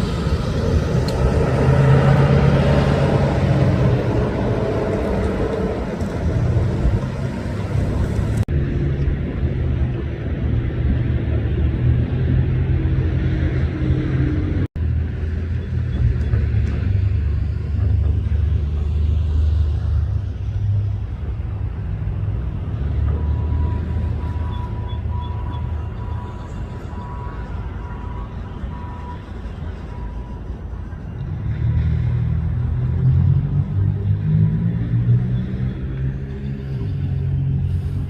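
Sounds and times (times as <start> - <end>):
freight train rumbling past: 0.0 - 38.0.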